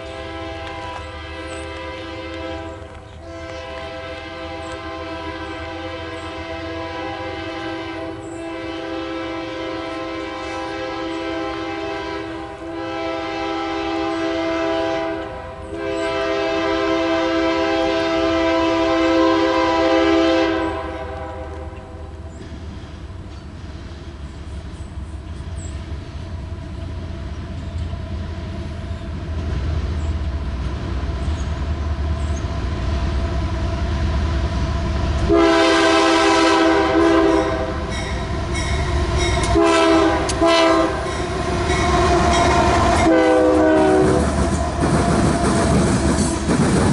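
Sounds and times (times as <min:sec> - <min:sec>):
locomotive air horn blasts: 0:00.0 - 0:22.1, 0:35.3 - 0:45.7
train low rumble: 0:00.0 - 0:46.9.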